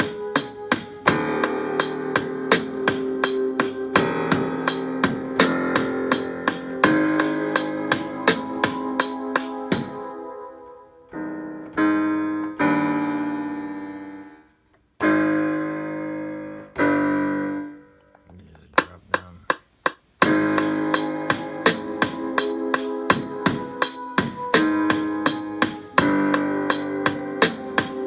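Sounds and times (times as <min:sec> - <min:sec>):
programmed beat: 0:00.0 - 0:10.1, 0:18.3 - 0:28.0
electric piano chords: 0:00.0 - 0:19.2, 0:20.2 - 0:28.0.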